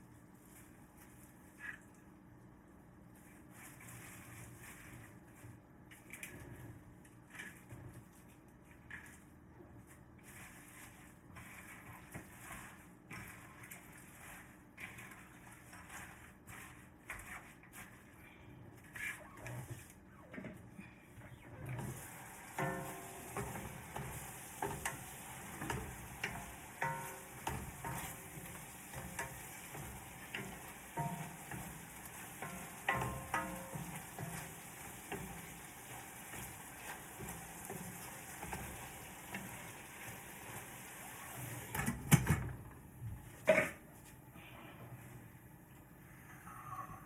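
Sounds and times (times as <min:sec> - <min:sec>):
utensil scraping against pan: 0:21.8 - 0:40.6
food sizzling in a pan: 0:21.8 - 0:41.8.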